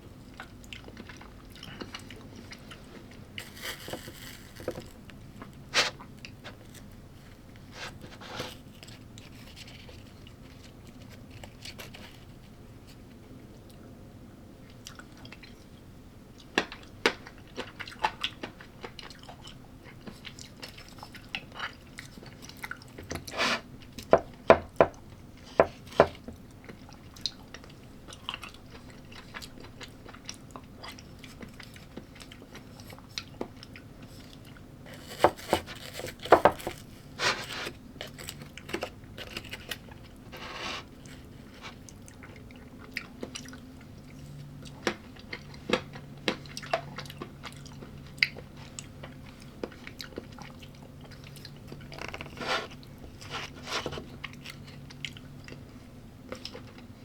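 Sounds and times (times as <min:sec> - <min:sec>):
person chewing crunchy food: 0:00.1 - 0:13.0, 0:16.4 - 0:24.1, 0:25.4 - 0:57.0.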